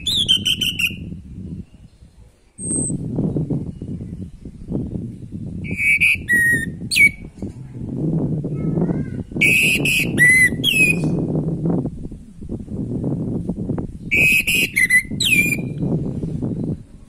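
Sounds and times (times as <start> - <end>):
bird whistled song: 0.0 - 7.3, 9.4 - 11.3, 14.0 - 16.9
low rumble: 1.0 - 5.8, 11.0 - 14.1.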